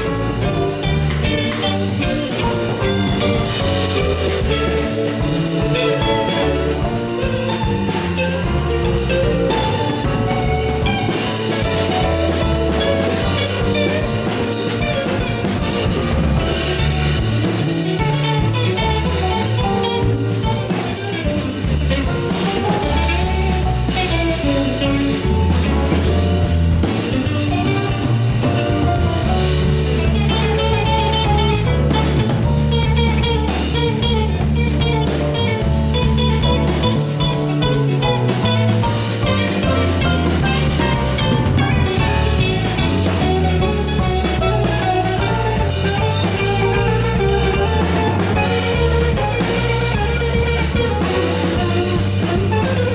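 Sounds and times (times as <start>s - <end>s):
busy bass line: 0.0s - 52.9s
drum kit: 0.0s - 52.9s
electric guitar: 0.0s - 52.9s.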